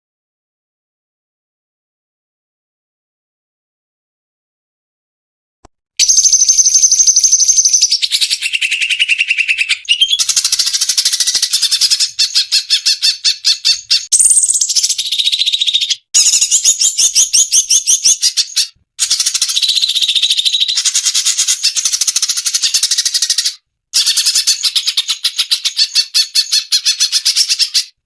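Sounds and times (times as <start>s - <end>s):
bird chattering song: 6.0s - 28.0s.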